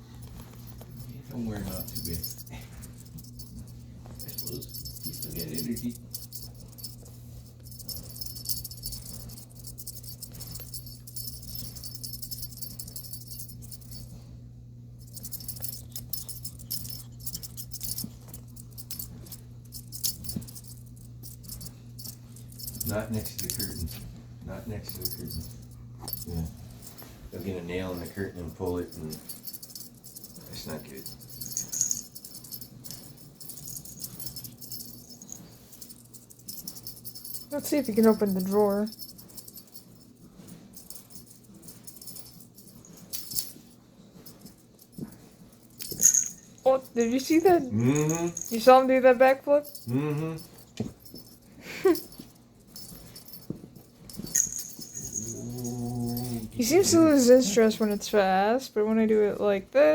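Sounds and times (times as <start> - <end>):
small bells jingling: 0.0 - 14.4, 15.0 - 59.6
low hum: 0.0 - 58.0.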